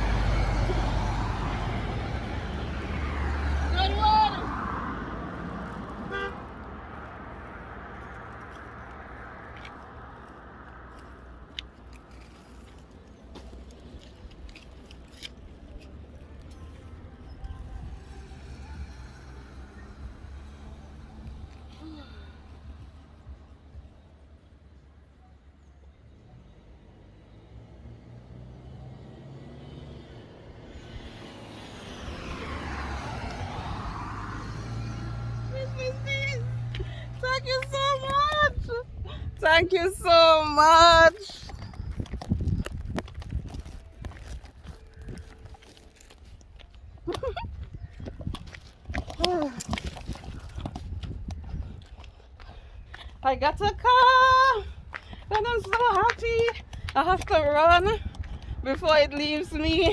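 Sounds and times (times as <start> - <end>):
car approaching: 0.0 - 59.9
vehicle rumble: 0.0 - 59.9
car horn toot: 6.0 - 6.5.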